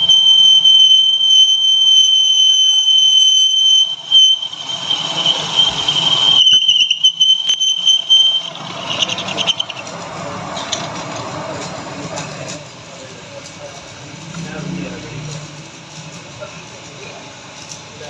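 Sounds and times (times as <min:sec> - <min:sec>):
lathe high-pitched squeal: 0:00.0 - 0:12.9
lathe rough scraping: 0:03.9 - 0:13.0.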